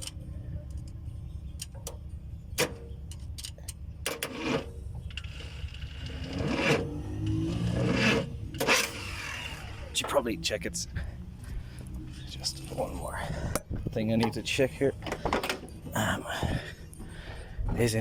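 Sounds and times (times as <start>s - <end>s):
mechanical scraping: 4.1s - 10.8s
low rumble: 4.8s - 14.9s.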